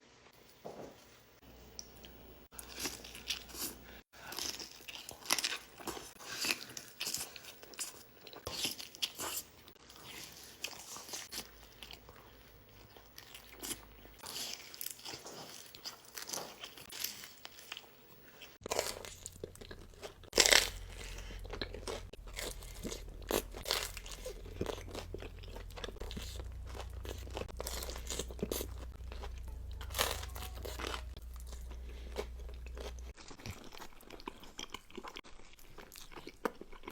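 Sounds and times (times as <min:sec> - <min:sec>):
chewing crunchy food: 0:01.7 - 0:36.9
low steady hum: 0:18.8 - 0:33.1.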